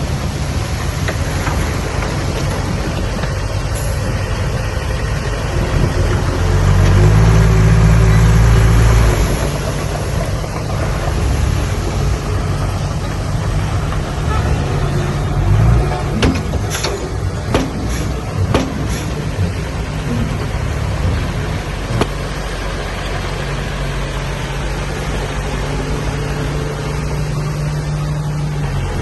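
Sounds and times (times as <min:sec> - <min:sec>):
heavy diesel engines running: 0:00.0 - 0:29.0
sharp metallic knocks: 0:16.0 - 0:22.3.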